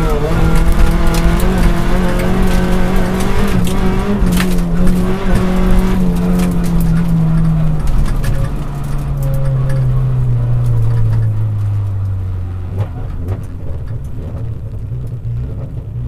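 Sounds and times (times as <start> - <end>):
car engine revs falling: 0.0 - 16.0
knocks and rattles: 0.0 - 16.0.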